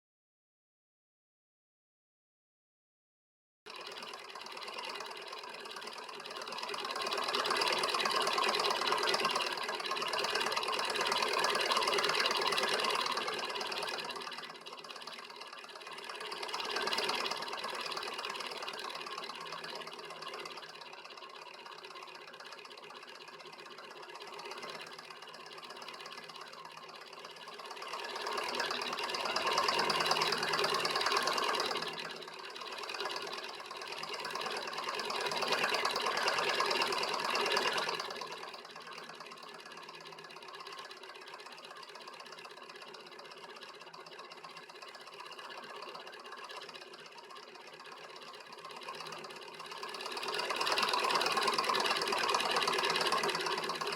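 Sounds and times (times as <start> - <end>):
stirling engine running: 3.7 - 53.9.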